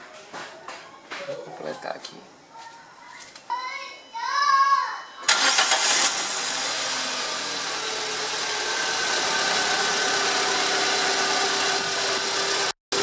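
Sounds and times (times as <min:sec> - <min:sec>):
car engine idling: 0:05.3 - 0:13.0.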